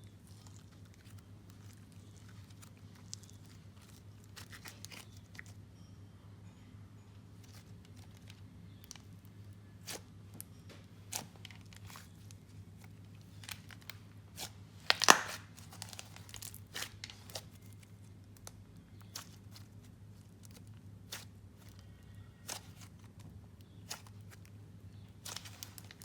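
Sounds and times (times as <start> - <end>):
slime clicks and pops: 14.9 - 15.4.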